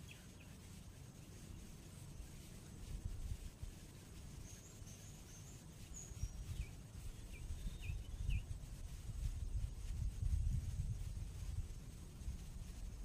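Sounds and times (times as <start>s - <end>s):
birds chirping: 0.0s - 2.8s, 4.3s - 8.6s
wind rumble on microphone: 0.0s - 13.0s.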